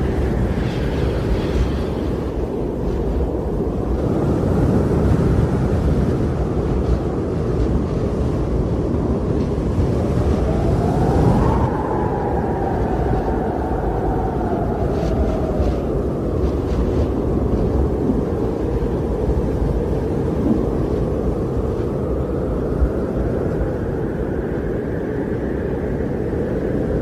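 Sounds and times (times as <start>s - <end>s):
strong wind rushing: 0.0s - 27.0s
wind howling whistle: 0.0s - 27.0s.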